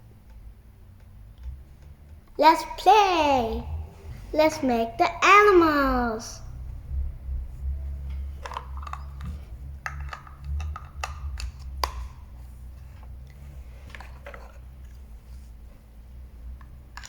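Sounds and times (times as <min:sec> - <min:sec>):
low handling rumble: 0:06.4 - 0:13.8.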